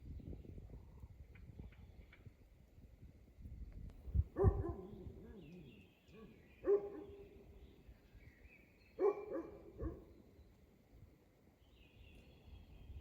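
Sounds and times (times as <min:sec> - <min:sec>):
dog barking: 0:04.4 - 0:05.6, 0:06.2 - 0:07.2, 0:09.0 - 0:10.1
faint bird chirps: 0:04.4 - 0:10.7.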